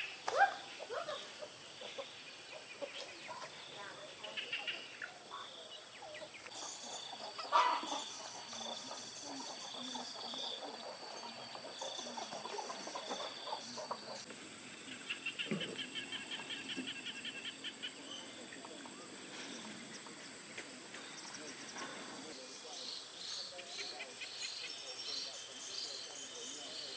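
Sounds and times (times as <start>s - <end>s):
chickens calling: 0.0s - 20.3s.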